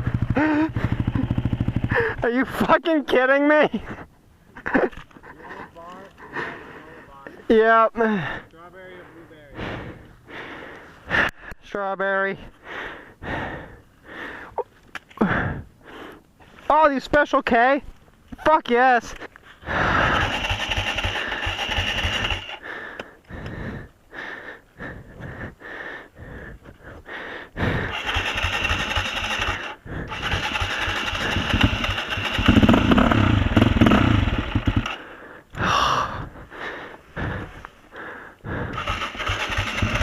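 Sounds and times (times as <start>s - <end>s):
motorcycle engine running: 0.0s - 2.7s, 19.8s - 22.6s, 27.8s - 35.0s, 38.6s - 40.0s.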